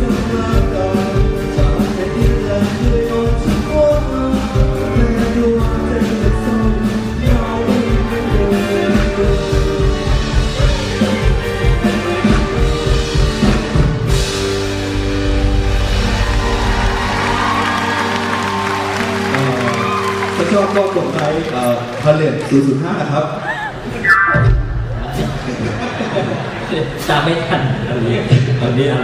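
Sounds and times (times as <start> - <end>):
man singing: 0.0 - 12.6
drums: 0.0 - 20.9, 24.0 - 26.3
live band playing pop-rock: 0.0 - 21.9.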